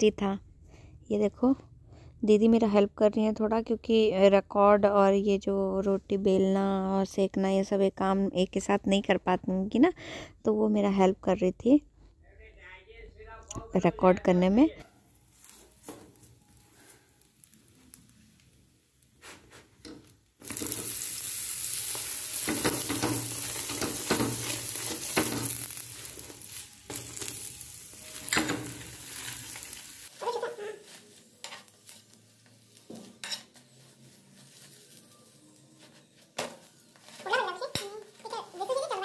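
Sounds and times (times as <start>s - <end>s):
fat sizzling on a pan: 15.0s - 39.0s
steel spoon scraping a griddle: 19.1s - 39.0s.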